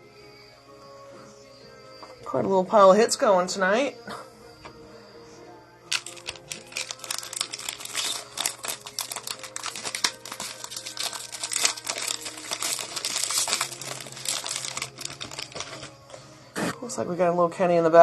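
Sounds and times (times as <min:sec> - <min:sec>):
card pack wrappers crinkling: 0:05.9 - 0:16.2
cards being handled: 0:05.9 - 0:16.2.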